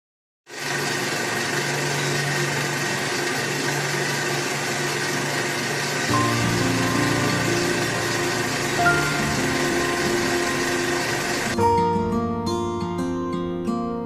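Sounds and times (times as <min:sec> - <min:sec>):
tractor engine running: 0:00.6 - 0:11.6.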